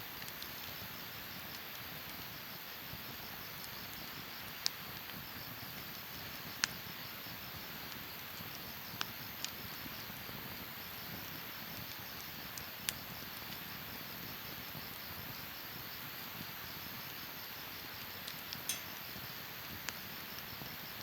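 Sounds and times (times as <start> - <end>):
fire crackling pops: 0.0 - 21.0
wood fire hissing: 0.0 - 21.0
insects chirping: 12.7 - 21.0.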